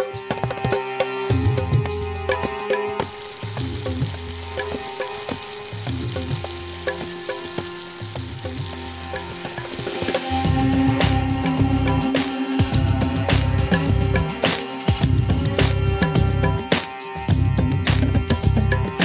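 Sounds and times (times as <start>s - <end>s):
onions sizzling in oil: 3.0s - 11.2s.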